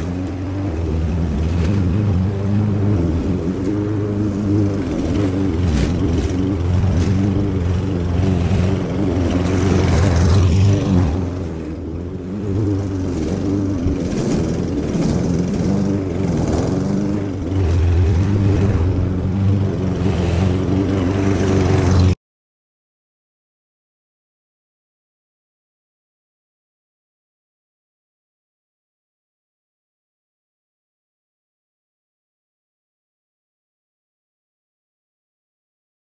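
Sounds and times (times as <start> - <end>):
small gasoline engine running: 0.0 - 22.2.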